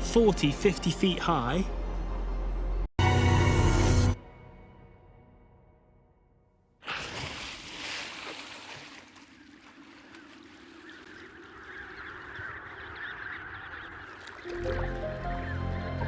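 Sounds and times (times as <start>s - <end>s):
chorus of penguins calling: 9.7s - 16.0s.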